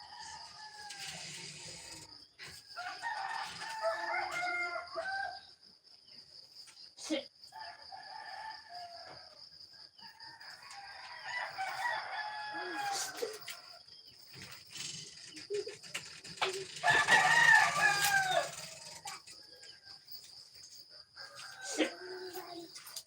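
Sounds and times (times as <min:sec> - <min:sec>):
roosters crowing: 0:00.0 - 0:05.5, 0:10.2 - 0:13.8, 0:14.4 - 0:19.3.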